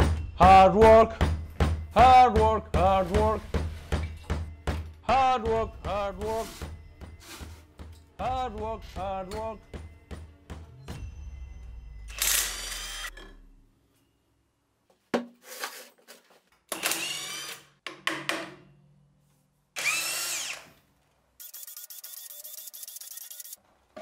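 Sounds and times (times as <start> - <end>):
cordless drill whining: 12.1 - 13.2, 16.7 - 17.7, 19.8 - 20.8, 21.4 - 23.6.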